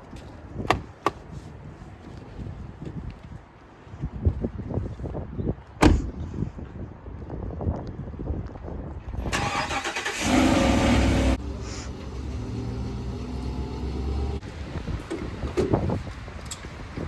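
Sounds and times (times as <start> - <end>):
car engine starting and idling: 9.2 - 16.6.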